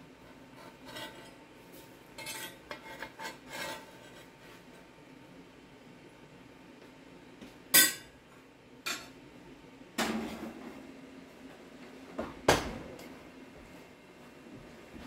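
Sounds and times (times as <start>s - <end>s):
dishes and utensils clinking: 2.2s - 4.2s, 7.7s - 8.2s.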